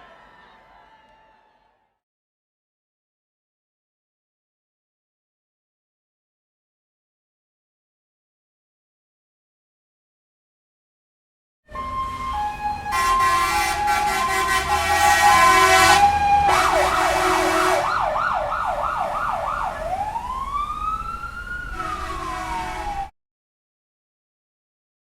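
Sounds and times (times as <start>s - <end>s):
emergency siren: 11.7s - 23.1s.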